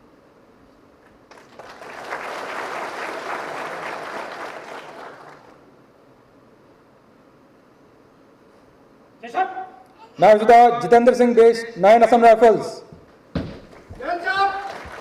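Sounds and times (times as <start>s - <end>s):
audience applauding: 1.3s - 5.6s, 13.7s - 15.0s.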